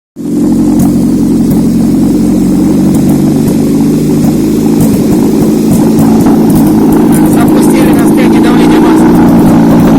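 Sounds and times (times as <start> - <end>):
petrol engine idling: 0.2 - 9.9.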